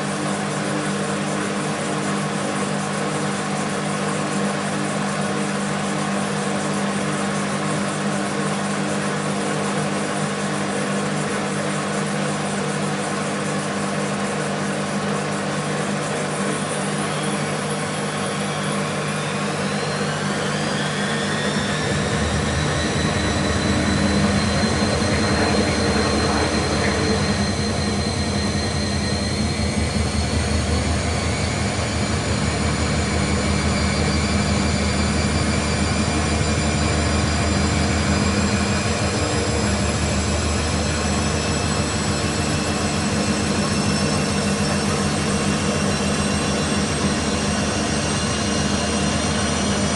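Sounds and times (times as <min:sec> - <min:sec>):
washing machine motor whine: 0:00.0 - 0:49.9
low drum rumble: 0:21.4 - 0:42.4.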